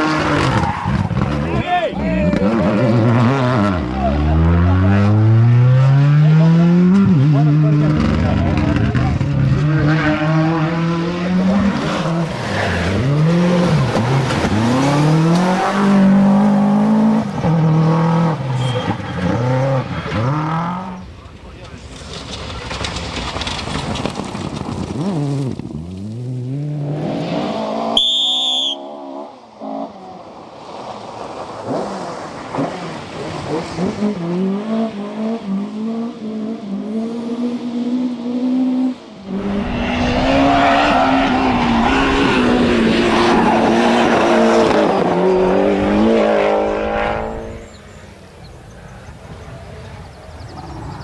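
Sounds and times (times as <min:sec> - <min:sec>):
rally car engine revving: 0:00.0 - 0:21.1, 0:31.4 - 0:48.2.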